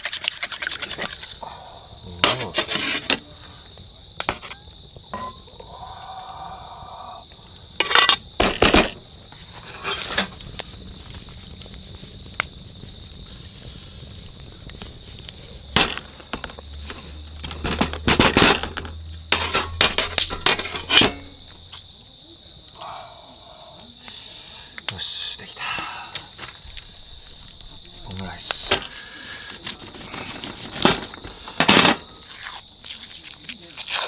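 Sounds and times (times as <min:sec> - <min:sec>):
insects chirring: 0:00.0 - 0:34.0
cookware and utensils clattering: 0:02.2 - 0:03.2, 0:04.3 - 0:05.5, 0:07.8 - 0:09.0, 0:17.4 - 0:21.8.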